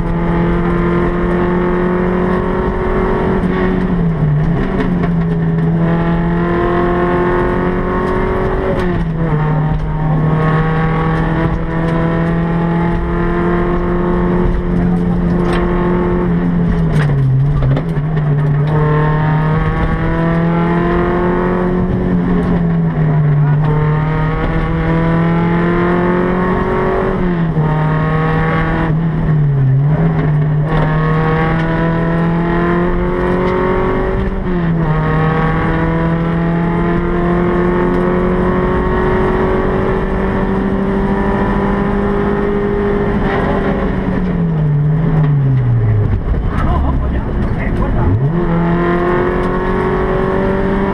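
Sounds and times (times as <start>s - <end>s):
car engine at high revs: 0.0s - 50.9s.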